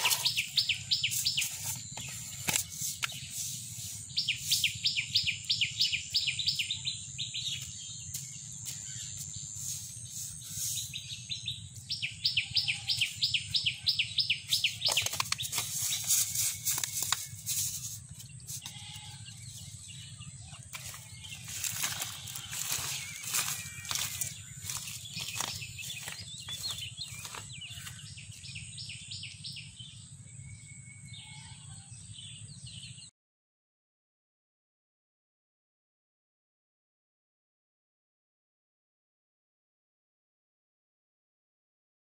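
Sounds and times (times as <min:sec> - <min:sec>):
bird rapid high chirps: 0:00.0 - 0:29.8
steady low hum: 0:00.0 - 0:31.0.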